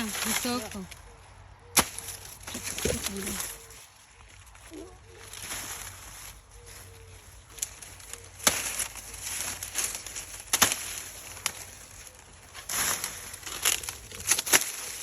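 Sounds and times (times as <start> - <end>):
dry corn plants rustling: 0.0 - 15.0
corn ears snapping off: 1.7 - 3.6, 7.5 - 15.0.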